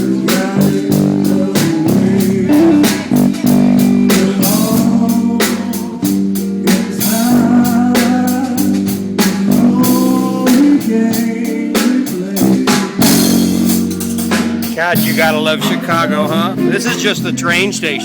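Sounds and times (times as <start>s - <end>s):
bass: 0.0s - 18.0s
guitar: 0.0s - 18.0s
steady drum beat: 0.0s - 18.0s
person singing: 0.2s - 6.2s, 14.8s - 18.0s.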